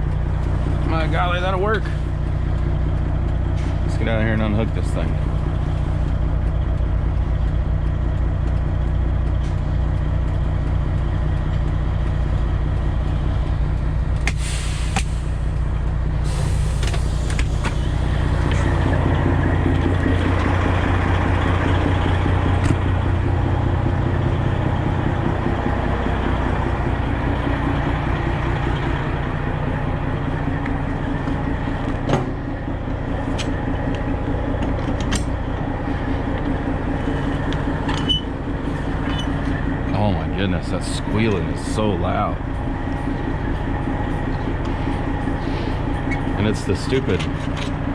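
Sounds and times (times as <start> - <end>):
diesel engine idling: 0.0 - 47.9
air hissing: 14.3 - 15.5, 16.2 - 18.8.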